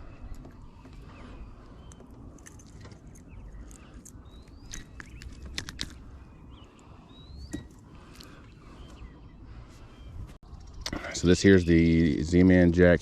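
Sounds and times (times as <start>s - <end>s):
rising bird chirps: 3.0s - 12.2s.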